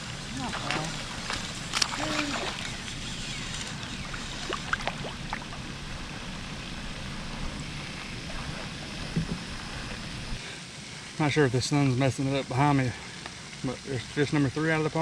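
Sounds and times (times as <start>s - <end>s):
water washing: 0.0s - 10.4s.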